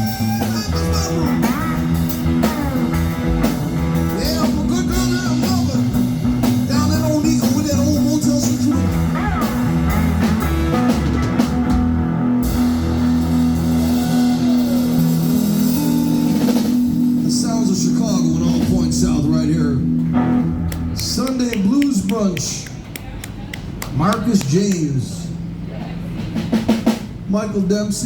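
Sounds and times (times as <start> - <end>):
slide guitar playing blues: 0.0 - 21.5.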